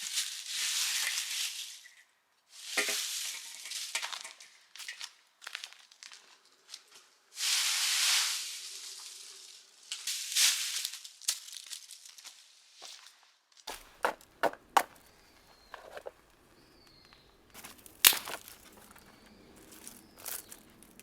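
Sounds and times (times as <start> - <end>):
rustling hiss: 0.0 - 4.6, 7.3 - 12.6
dry material crunching by hand: 8.9 - 13.1, 16.9 - 21.0.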